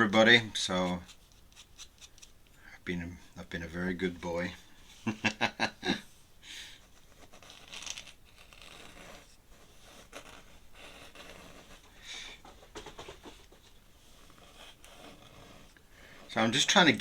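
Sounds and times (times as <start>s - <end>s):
pen scratching on paper: 6.8s - 17.0s.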